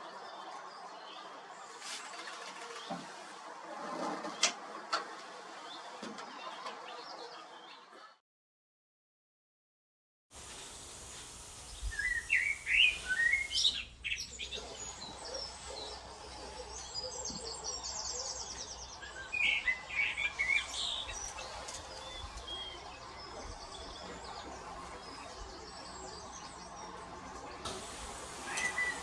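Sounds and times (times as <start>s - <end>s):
background hiss: 10.4s - 24.0s, 27.6s - 29.0s
birds chirping and singing: 11.5s - 29.0s
bird high trill: 11.9s - 14.4s.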